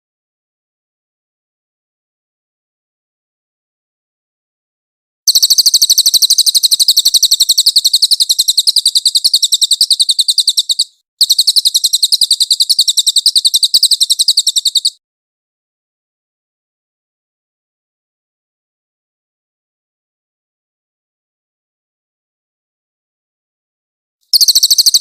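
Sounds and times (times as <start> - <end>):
songbird singing rapid notes: 5.3 - 15.0, 24.3 - 25.0.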